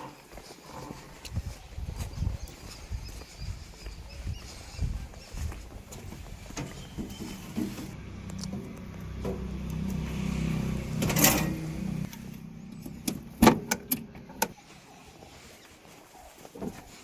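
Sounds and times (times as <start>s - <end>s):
heavy engine running: 6.6s - 14.4s.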